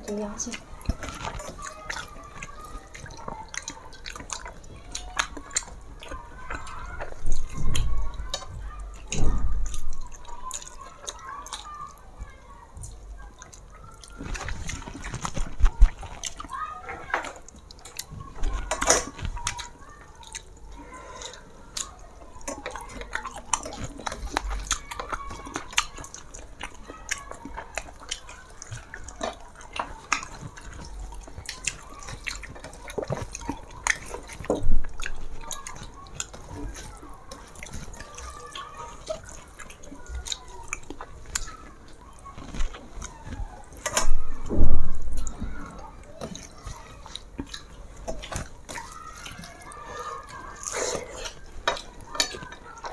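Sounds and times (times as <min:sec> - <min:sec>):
wet chewing: 0:00.0 - 0:52.9
lip smacks: 0:45.2 - 0:52.9.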